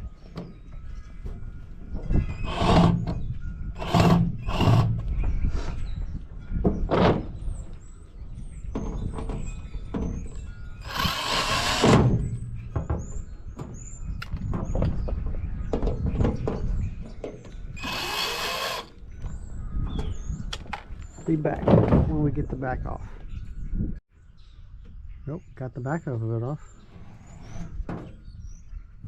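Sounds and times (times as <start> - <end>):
rasping tool noise: 2.4 - 3.2, 3.8 - 5.0, 10.8 - 12.2, 17.8 - 19.0.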